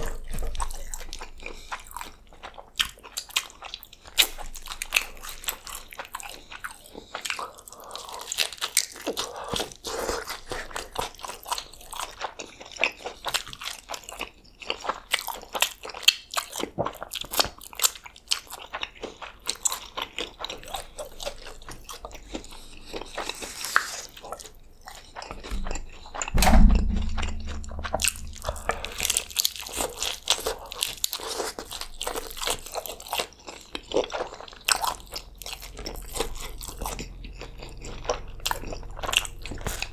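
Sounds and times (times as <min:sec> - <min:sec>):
loud low thump: 0:25.4 - 0:29.4.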